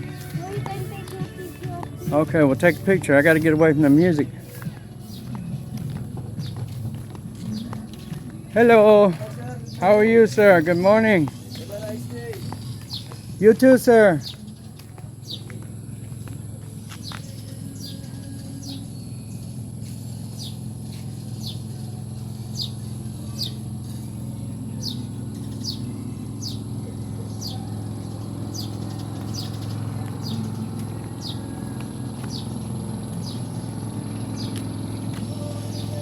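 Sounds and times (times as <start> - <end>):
bird chirping: 1.4 - 36.0
steady low hum: 14.2 - 36.0.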